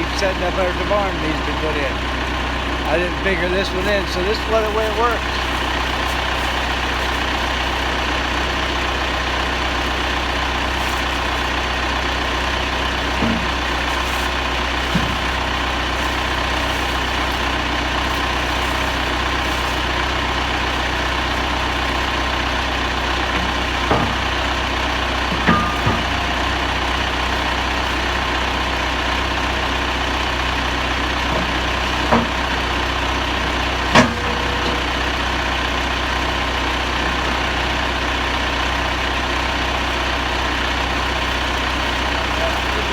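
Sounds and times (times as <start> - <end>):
engine idling: 0.0 - 42.9
sharp clunks: 23.3 - 28.1, 31.3 - 35.2.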